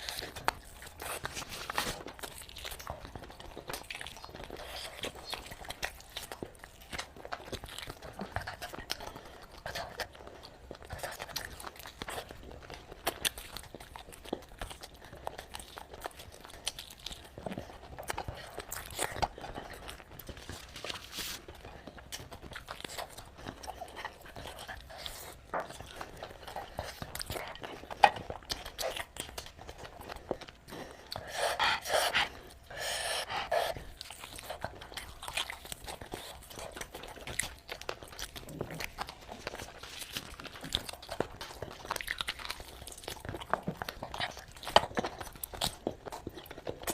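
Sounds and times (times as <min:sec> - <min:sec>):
person chewing crunchy food: 0:00.0 - 0:46.9.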